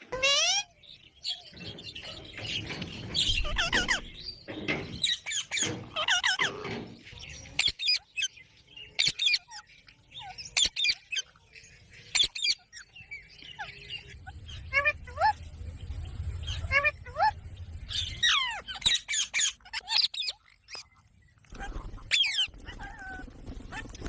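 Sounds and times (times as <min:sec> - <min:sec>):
parakeet warbling and chattering: 0:00.0 - 0:00.8, 0:03.2 - 0:04.1, 0:05.1 - 0:06.8, 0:12.1 - 0:12.9, 0:13.5 - 0:15.4, 0:16.4 - 0:21.0, 0:21.6 - 0:24.0
parakeet squawks: 0:00.1 - 0:00.7, 0:03.3 - 0:04.1, 0:05.2 - 0:06.7, 0:16.4 - 0:20.9.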